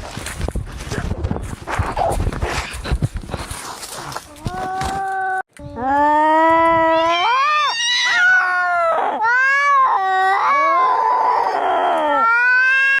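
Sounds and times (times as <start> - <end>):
cats yowling in a fight: 6.8 - 13.0.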